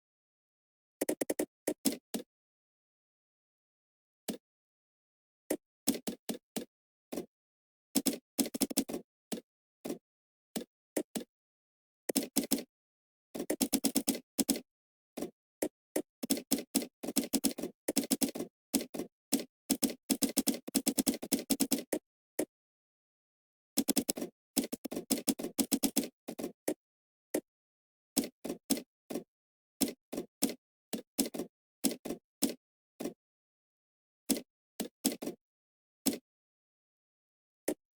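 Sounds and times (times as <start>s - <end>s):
typing on computer keyboard: 12.1s - 12.7s, 13.4s - 14.6s, 16.2s - 22.0s, 23.8s - 26.5s.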